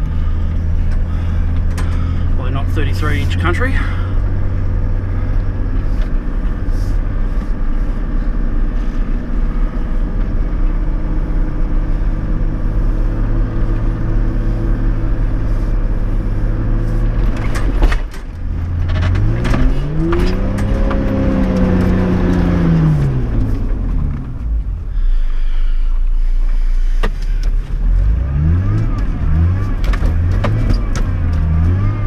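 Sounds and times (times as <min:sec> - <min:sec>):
vehicle engine revving: 0:00.0 - 0:25.3, 0:26.1 - 0:32.0
vehicle knocks and clunks: 0:17.0 - 0:24.6, 0:28.7 - 0:31.9.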